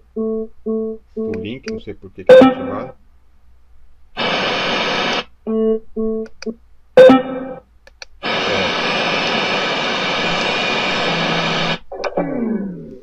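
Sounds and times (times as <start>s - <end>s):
short electronic beeps: 2.3s - 2.9s
radio static: 4.2s - 5.3s, 8.2s - 11.8s.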